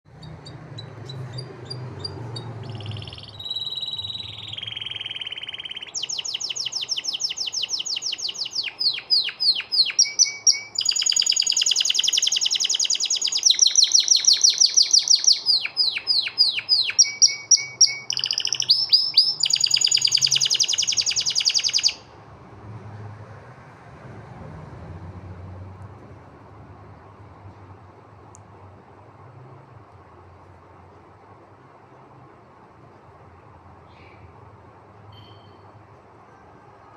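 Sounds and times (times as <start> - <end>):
canary singing trills: 0.1 - 22.1, 35.1 - 35.8.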